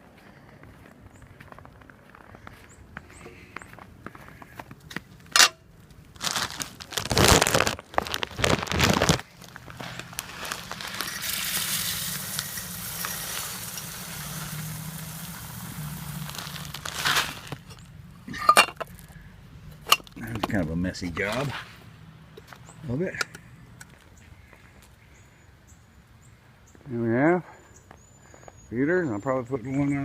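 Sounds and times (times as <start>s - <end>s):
rustling crunching handling noises: 3.2s - 25.0s
seed pouring hiss: 9.4s - 17.8s.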